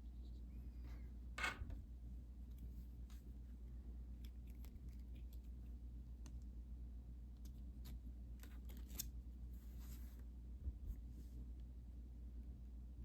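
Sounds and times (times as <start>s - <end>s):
low steady background hum: 0.0s - 13.0s
small clicks and light scratches: 2.4s - 3.3s, 4.2s - 6.5s, 7.3s - 9.2s.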